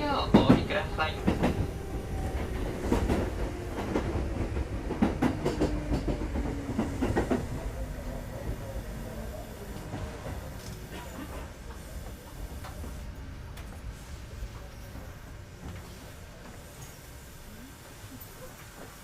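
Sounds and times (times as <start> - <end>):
train wheels clacking over rail joints: 2.4 - 7.6.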